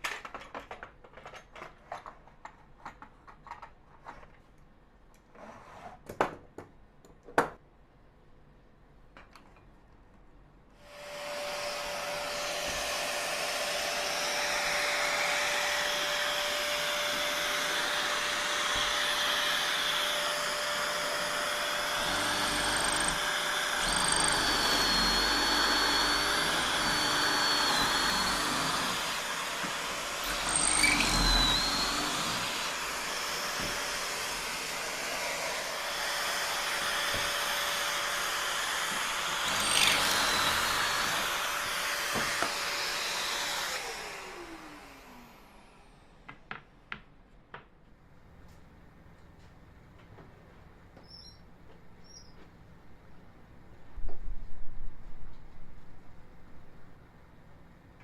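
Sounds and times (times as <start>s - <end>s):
shop vacuum running: 10.8s - 46.0s
power tool whine and rumble: 10.8s - 46.2s.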